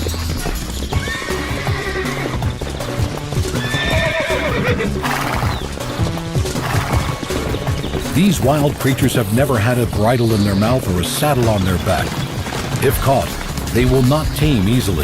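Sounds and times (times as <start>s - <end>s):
background music: 0.0s - 15.0s
hoofbeats of running horses: 0.0s - 15.0s
horse whinnies: 0.4s - 8.1s.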